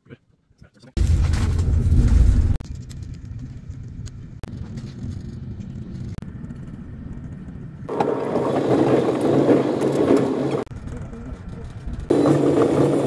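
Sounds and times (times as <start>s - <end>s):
train interior rumble and hum: 0.8s - 13.0s
train rushing at speed: 7.9s - 10.7s, 12.1s - 13.0s.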